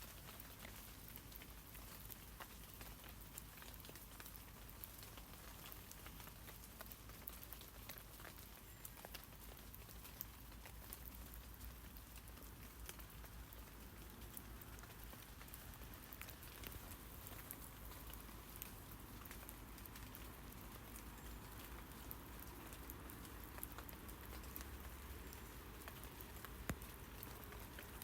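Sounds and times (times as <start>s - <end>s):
rain patter on leaves: 0.0s - 28.0s.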